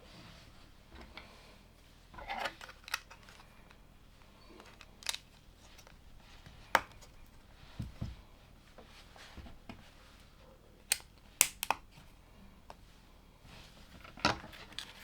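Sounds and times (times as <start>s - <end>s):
rummaging rustle: 2.0s - 8.3s
plastic pieces clicking together: 2.4s - 3.8s, 4.5s - 6.0s, 10.9s - 11.8s.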